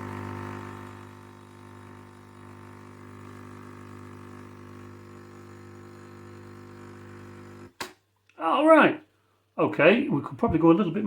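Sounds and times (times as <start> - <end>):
coffee machine pump humming: 0.0 - 7.8.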